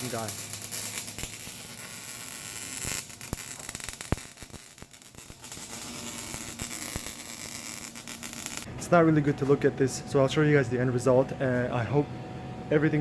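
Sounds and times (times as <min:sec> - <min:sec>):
welding arc crackling and hissing: 0:00.0 - 0:08.7.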